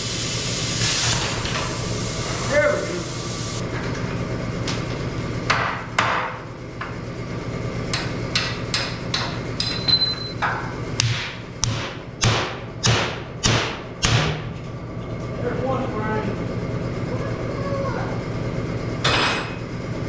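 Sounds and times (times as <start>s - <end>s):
hammer striking steel: 11.0s - 14.5s.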